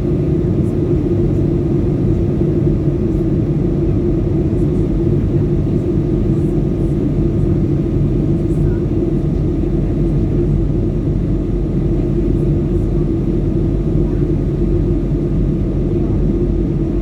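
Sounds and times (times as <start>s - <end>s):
airliner cabin drone: 0.0s - 17.0s.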